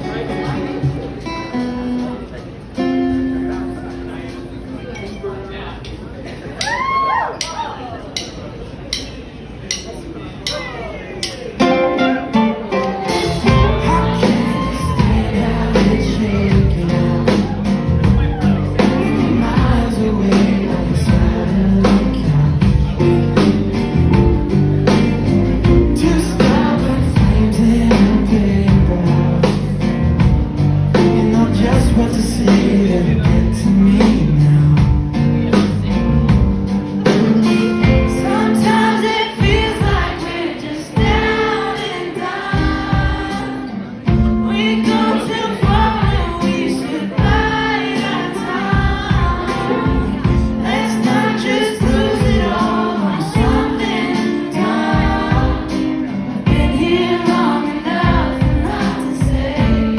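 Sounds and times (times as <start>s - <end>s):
live band playing: 0.0s - 59.9s
people singing: 12.4s - 35.9s, 37.0s - 59.9s.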